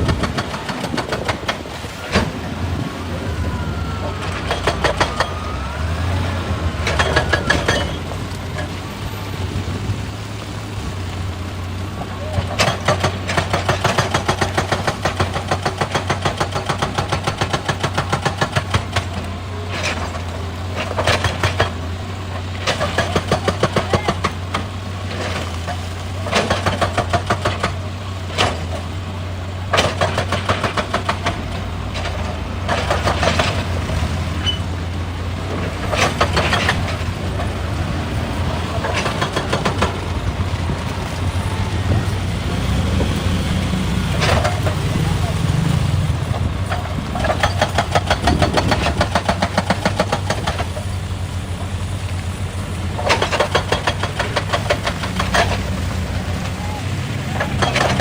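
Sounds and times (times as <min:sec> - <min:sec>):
rapid even clattering: 0:00.0 - 0:02.5, 0:35.5 - 0:43.0, 0:43.6 - 0:51.7, 0:53.0 - 0:56.6, 0:57.3 - 0:58.0
diesel engine droning: 0:00.0 - 0:58.0.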